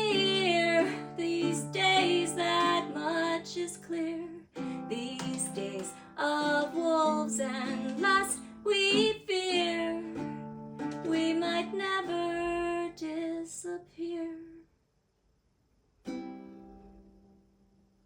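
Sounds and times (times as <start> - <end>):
person singing: 0.0 - 10.3, 10.9 - 14.6
baritone ukulele chords: 0.0 - 12.9, 16.1 - 17.4.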